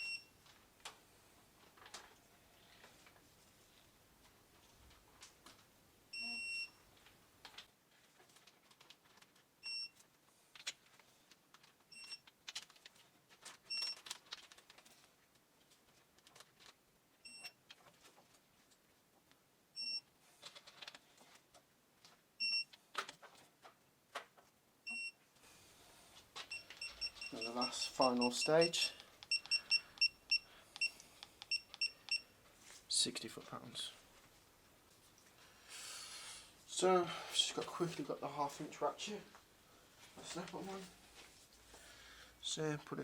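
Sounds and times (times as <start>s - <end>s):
short high beeps: 26.5s - 30.9s.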